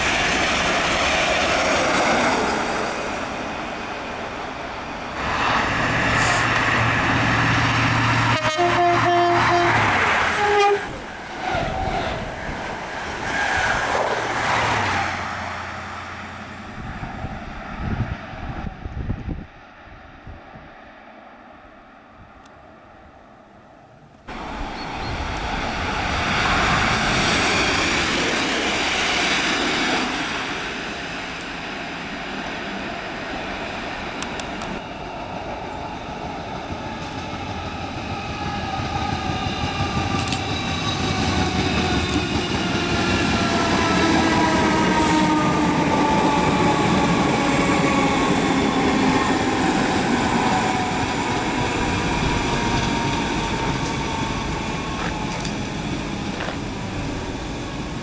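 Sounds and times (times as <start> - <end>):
rail and wheel noise: 0.0 - 58.0.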